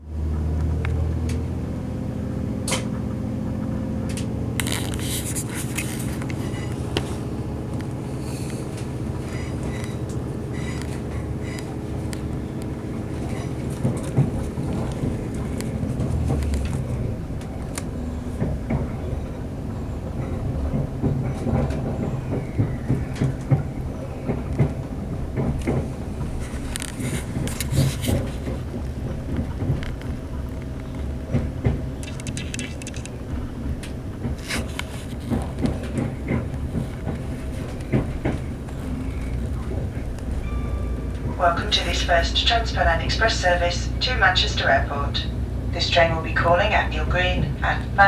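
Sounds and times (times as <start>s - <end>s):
diesel engine humming: 0.0s - 48.0s
clicks and rattles: 25.4s - 33.2s.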